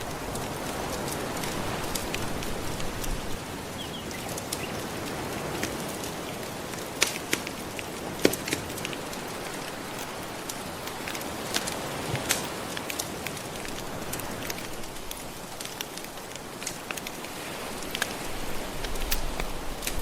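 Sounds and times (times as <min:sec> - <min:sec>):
ocean waves: 0:00.0 - 0:20.0
wood fire crackling and popping: 0:06.7 - 0:20.0.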